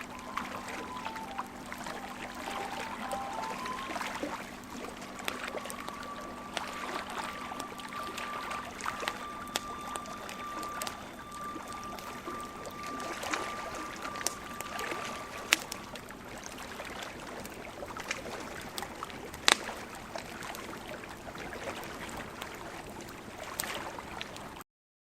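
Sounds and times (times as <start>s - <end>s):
thin high tone: 0.0s - 16.9s
bonfire crackling: 0.0s - 24.2s.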